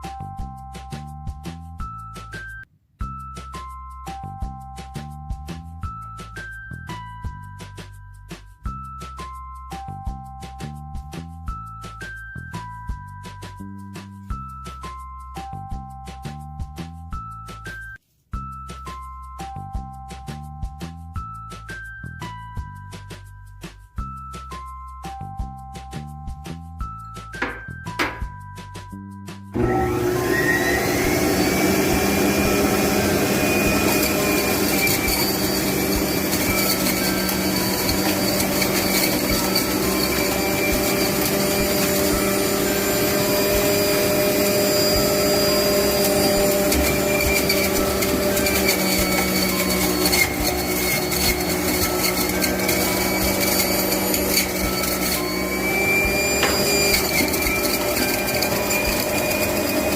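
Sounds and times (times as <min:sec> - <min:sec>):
juicer motor grinding: 0:29.6 - 0:59.9.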